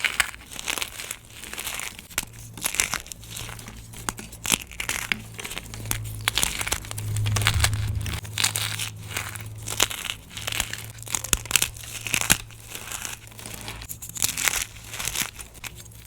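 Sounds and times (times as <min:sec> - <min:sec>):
chalk crunching by hand: 0:00.0 - 0:16.0
steady low hum: 0:03.2 - 0:11.4.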